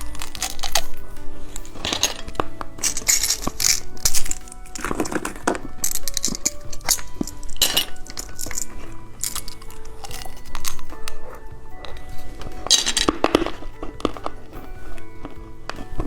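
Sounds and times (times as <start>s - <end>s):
background music with held notes: 0.0s - 16.0s
plastic packaging crinkling: 0.0s - 16.0s.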